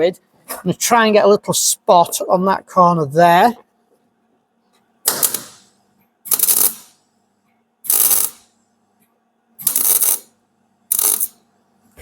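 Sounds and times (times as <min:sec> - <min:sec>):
welding arc crackling: 0:05.1 - 0:05.7, 0:06.3 - 0:07.0, 0:07.9 - 0:08.6, 0:09.6 - 0:11.4.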